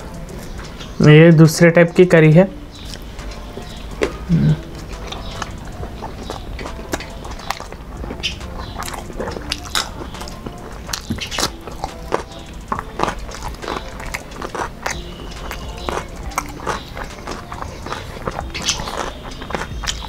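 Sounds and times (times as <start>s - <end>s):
sharp mouth clicks: 2.8s - 3.1s, 3.9s - 20.0s
lip smacks: 2.8s - 3.3s, 3.9s - 20.0s
chewing: 2.8s - 20.0s
biting into cucumber: 4.0s - 20.0s.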